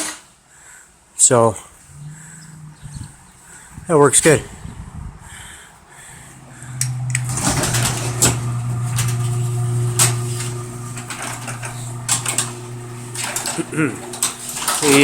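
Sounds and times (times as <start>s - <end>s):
garage door motor hum: 6.0s - 15.0s
door rattling along track: 6.4s - 15.0s.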